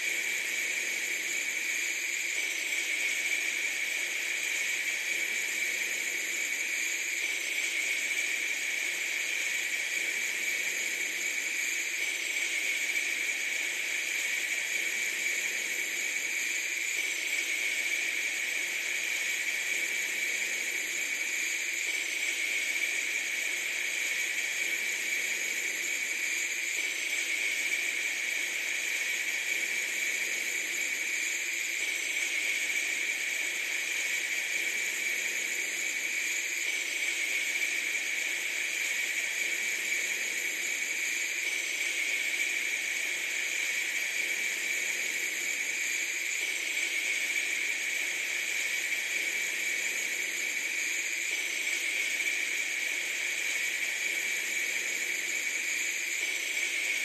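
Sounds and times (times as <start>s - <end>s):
steady high hiss: 0.0s - 57.0s.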